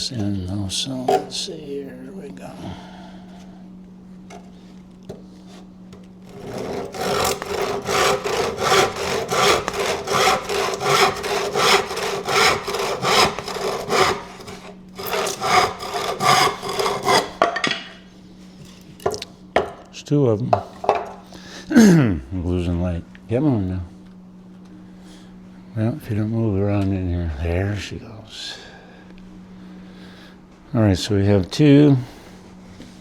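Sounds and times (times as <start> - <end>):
handsaw cutting wood: 5.4 - 17.5.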